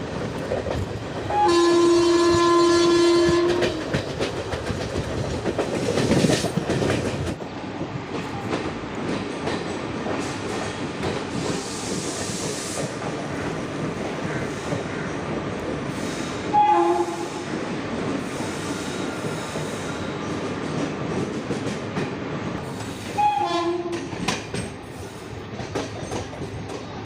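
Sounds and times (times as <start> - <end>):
train coach rumbling over track: 0.0 - 27.0
locomotive horn: 1.3 - 3.9, 16.5 - 17.5, 23.2 - 24.1.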